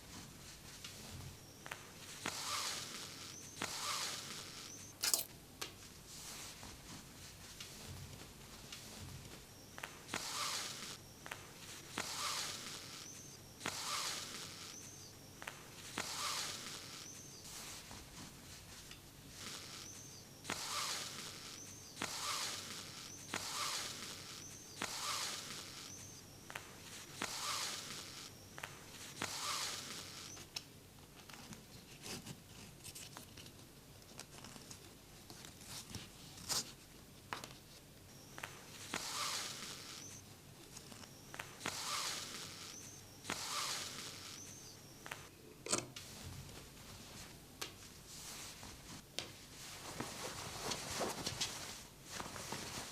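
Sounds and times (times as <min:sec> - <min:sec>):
thread pulled through denim: 0:05.0 - 0:05.3.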